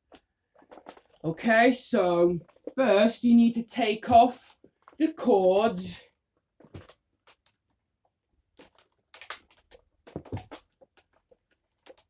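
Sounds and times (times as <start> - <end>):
clicks and knocks of cord and plastic: 0.0 - 1.3, 2.4 - 2.8, 6.6 - 7.8, 8.5 - 12.0.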